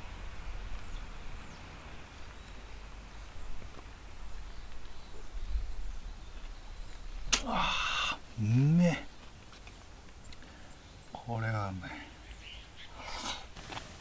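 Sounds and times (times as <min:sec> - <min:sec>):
wind rumble on microphone: 0:00.0 - 0:07.4.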